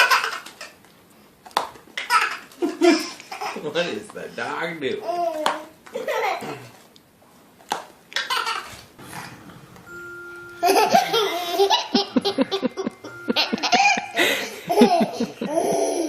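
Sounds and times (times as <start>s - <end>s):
baby laughing: 2.0s - 3.6s, 8.2s - 8.8s, 10.6s - 16.0s.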